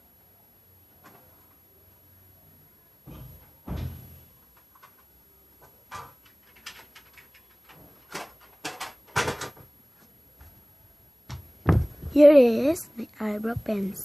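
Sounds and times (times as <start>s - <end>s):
small objects knocking and clicking: 4.5s - 9.6s.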